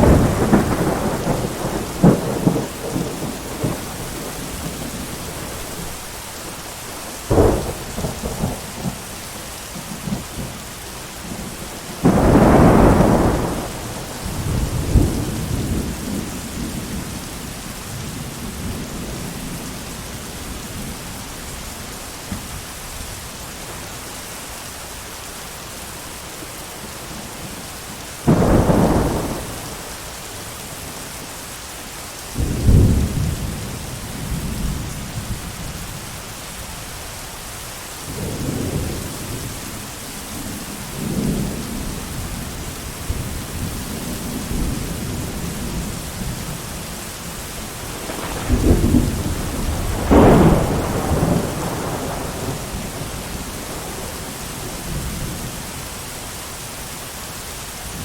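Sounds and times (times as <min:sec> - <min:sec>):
thunder claps: 0:00.0 - 0:05.9, 0:07.2 - 0:09.0, 0:11.3 - 0:17.2, 0:28.3 - 0:30.0, 0:47.8 - 0:55.4
thunder rumbling: 0:00.0 - 0:10.6, 0:11.2 - 0:23.9, 0:28.2 - 0:30.0, 0:38.1 - 0:55.8
heavy rain: 0:00.0 - 0:58.0.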